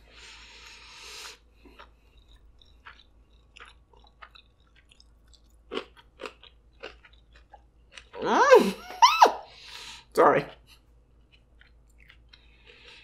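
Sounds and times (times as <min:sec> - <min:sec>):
chewing with wet mouth clicks: 0:01.1 - 0:08.2, 0:10.5 - 0:13.0.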